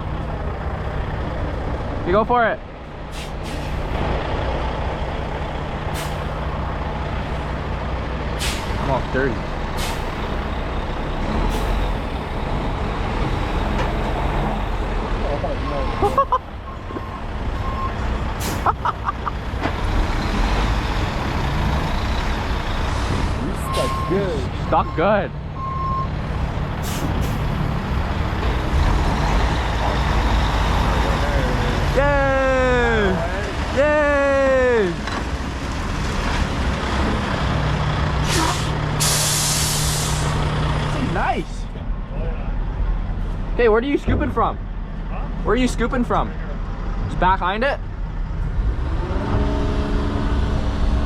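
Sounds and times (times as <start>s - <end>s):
heavy diesel engines rumbling: 0.0s - 51.0s
truck air brakes hissing: 3.1s - 3.9s, 5.9s - 6.6s, 8.3s - 8.9s, 9.7s - 10.5s, 11.4s - 12.3s, 18.2s - 18.9s, 23.7s - 24.5s, 26.8s - 27.7s, 38.2s - 40.5s
air hiss: 38.3s - 40.4s.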